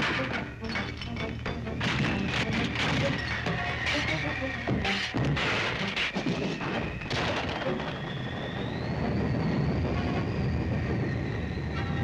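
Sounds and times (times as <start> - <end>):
high rising and falling whine: 2.6 - 12.0.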